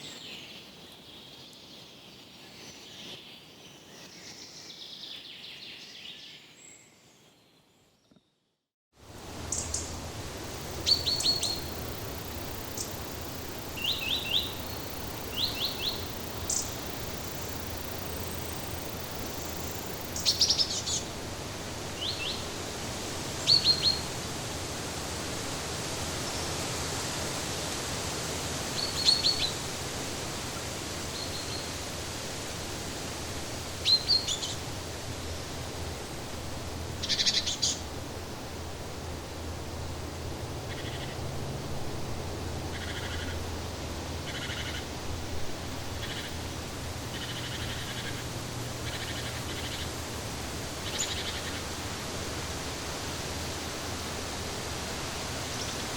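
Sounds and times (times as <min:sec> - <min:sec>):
background hiss: 0:09.0 - 0:55.9
small birds chirping: 0:09.5 - 0:21.1, 0:37.0 - 0:37.9, 0:44.3 - 0:44.8, 0:46.0 - 0:46.4, 0:47.0 - 0:50.0, 0:50.8 - 0:51.7.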